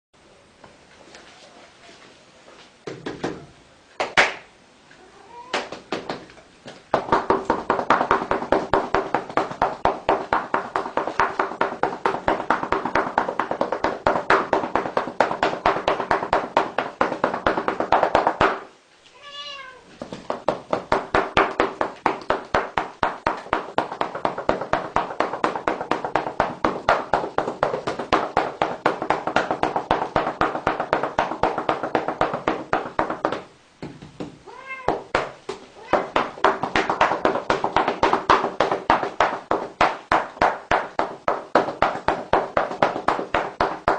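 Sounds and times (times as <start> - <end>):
cat crying: 5.0 - 5.6, 19.2 - 19.9, 34.5 - 35.0
rapid rhythmic thumps: 6.9 - 18.7, 20.2 - 43.9.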